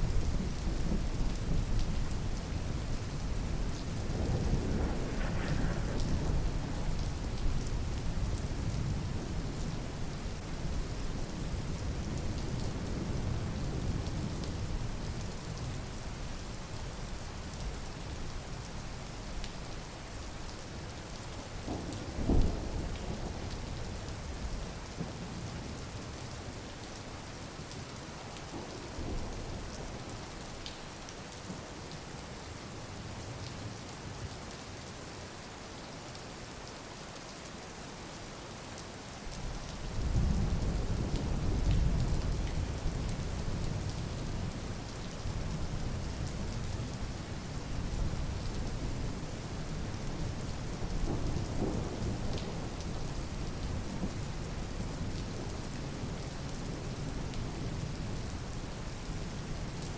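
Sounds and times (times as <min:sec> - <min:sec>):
steady rain falling: 0:00.0 - 0:59.9
thunder rumbling: 0:03.6 - 0:08.7, 0:50.6 - 0:54.2.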